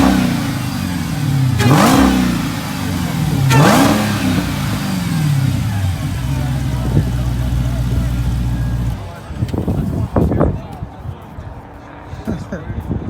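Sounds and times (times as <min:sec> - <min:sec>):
car engine revving: 0:00.0 - 0:09.9
engine intake noise: 0:00.0 - 0:10.1.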